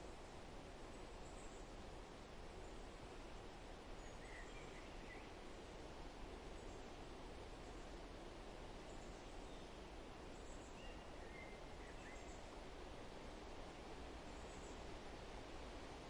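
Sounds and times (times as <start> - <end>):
faint bird chirps: 4.0 - 5.4, 10.4 - 12.5, 14.3 - 14.9.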